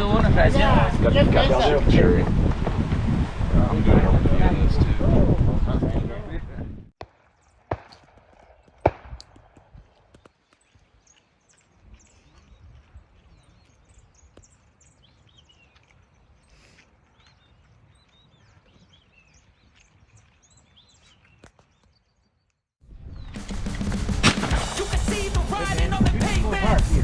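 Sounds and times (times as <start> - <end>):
shotgun shot: 7.7 - 9.6, 23.4 - 25.6
small birds chirping: 9.7 - 23.3.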